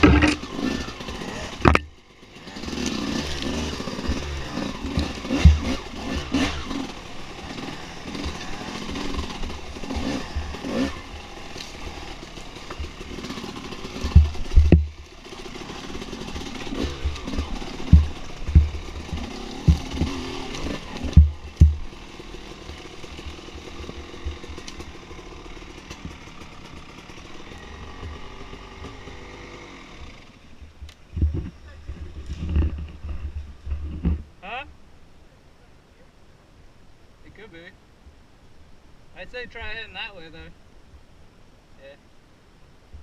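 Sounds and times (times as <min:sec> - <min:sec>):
heavy thumps: 0:00.0 - 0:00.4, 0:14.0 - 0:15.0, 0:16.8 - 0:20.2, 0:21.0 - 0:21.9
dirt bike engine revving: 0:00.0 - 0:30.6.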